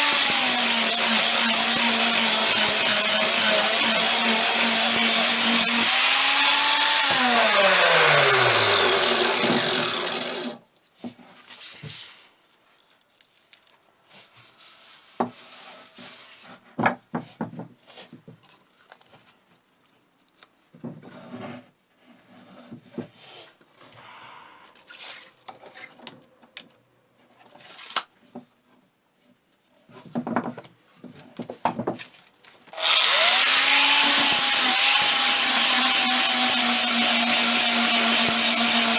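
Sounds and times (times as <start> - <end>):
power tool motor running: 0.0 - 10.6, 32.8 - 38.9.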